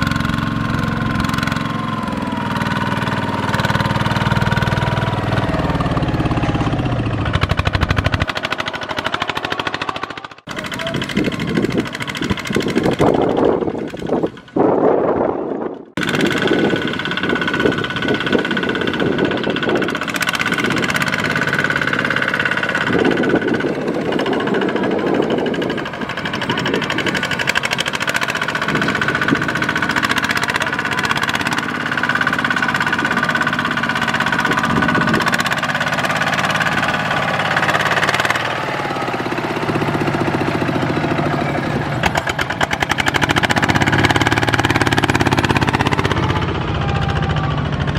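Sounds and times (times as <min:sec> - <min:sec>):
diesel tractor engines chugging: 0:00.0 - 0:47.9.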